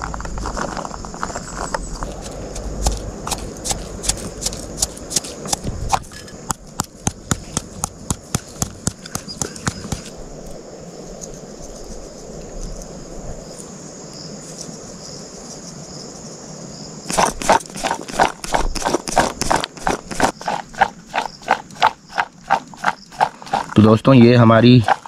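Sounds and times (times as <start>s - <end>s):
insect drone: 0.0s - 25.0s
utensil clacking rapidly: 17.1s - 25.0s.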